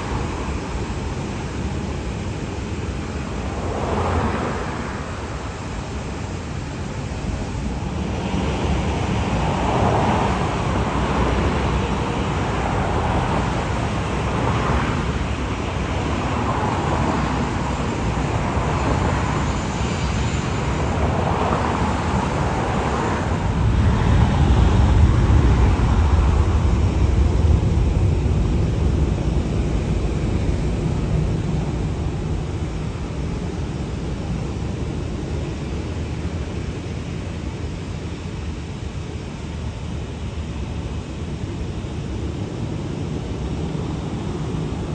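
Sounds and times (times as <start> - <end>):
jet engines roaring: 0.0 - 44.9.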